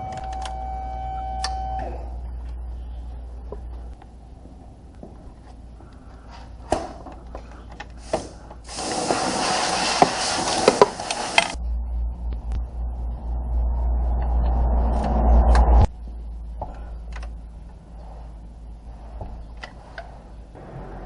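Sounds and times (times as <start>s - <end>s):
low rumble: 0.0s - 6.3s, 11.5s - 21.0s
hissing spray: 8.0s - 11.6s.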